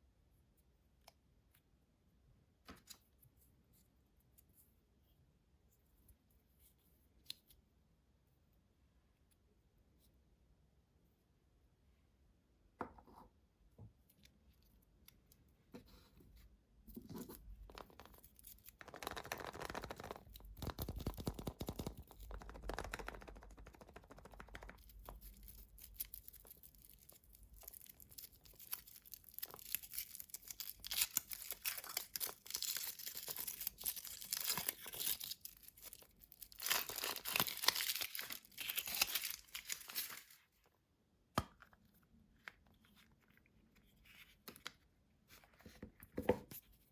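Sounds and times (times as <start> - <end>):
wrapper being torn and crinkled: 24.7 - 40.5.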